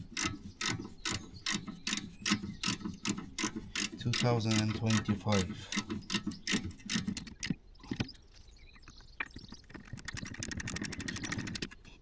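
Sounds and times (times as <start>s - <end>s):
ratchet wrench clicking: 0.0s - 7.2s.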